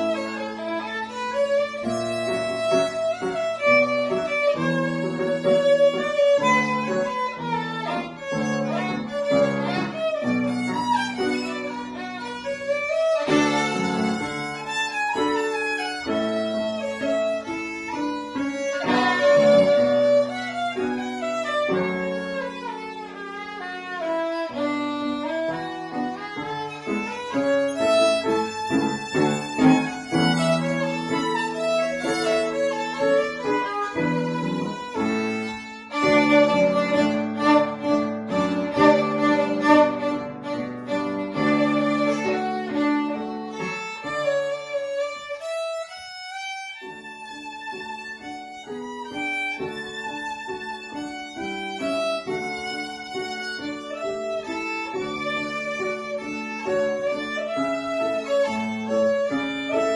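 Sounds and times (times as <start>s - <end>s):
violin playing classical piece: 0.0s - 59.9s.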